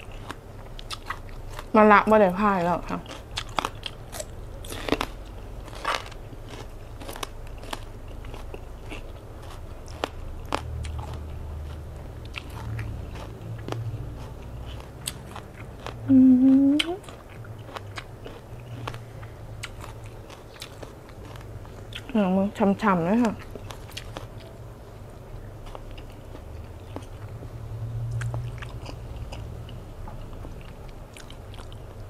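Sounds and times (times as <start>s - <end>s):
crunching a raw vegetable: 3.1s - 22.2s
rising voice hum: 16.0s - 17.1s.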